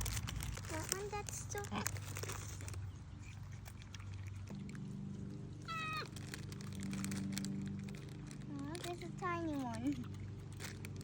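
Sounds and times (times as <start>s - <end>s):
steady low hum: 0.0s - 11.0s
monkey high-pitched call: 5.6s - 6.1s.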